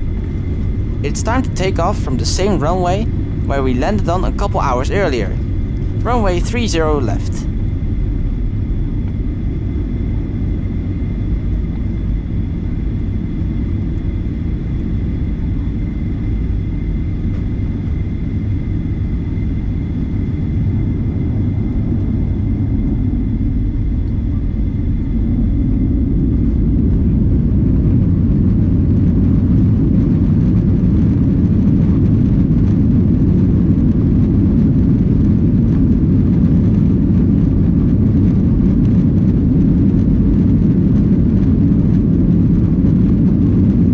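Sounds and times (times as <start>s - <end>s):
faint high engine whine: 0.0s - 9.7s
jet engine rumble in cabin: 0.0s - 9.7s.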